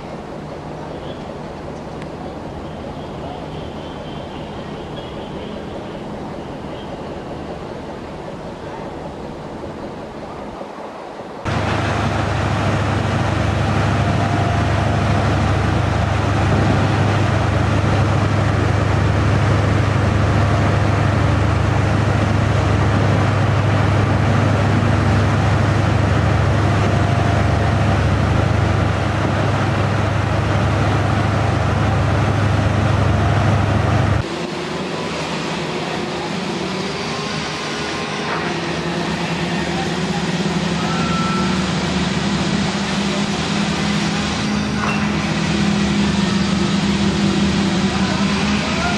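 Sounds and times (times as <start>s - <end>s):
heavy machinery engine running: 11.4s - 48.9s.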